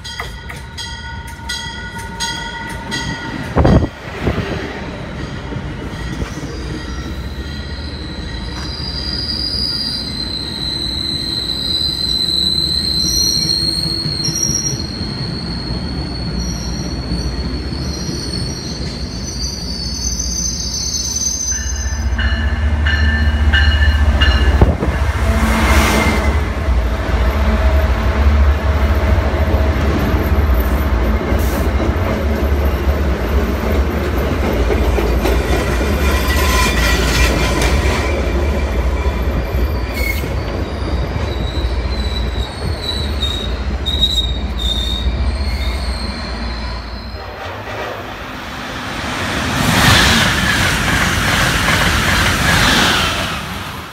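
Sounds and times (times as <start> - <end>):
train passing with loud rush: 0.0 - 53.9
train wheels rolling: 0.0 - 53.9
wheel squeals: 6.1 - 22.2, 35.9 - 37.7, 39.0 - 47.4
diesel locomotive engine rumble: 21.6 - 53.9.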